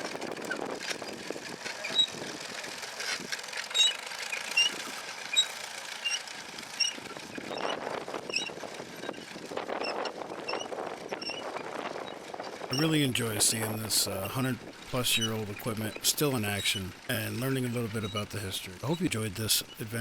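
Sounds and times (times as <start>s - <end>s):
planter mechanism clattering: 0.0s - 10.8s.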